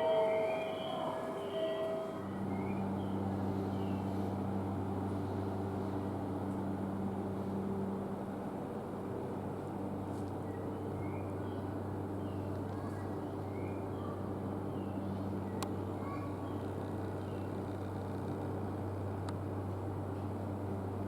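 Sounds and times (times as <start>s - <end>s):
train electrical hum: 0.0s - 21.0s.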